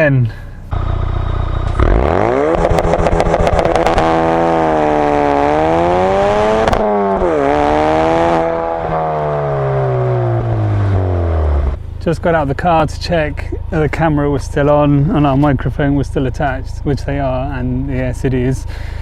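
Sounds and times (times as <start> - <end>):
car engine revving hard: 1.7 - 11.8.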